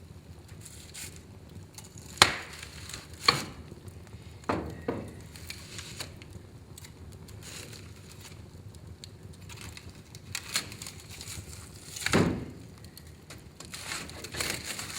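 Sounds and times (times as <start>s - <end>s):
wood fire crackling: 0.0s - 14.9s
sharp fire pops: 0.4s - 14.9s.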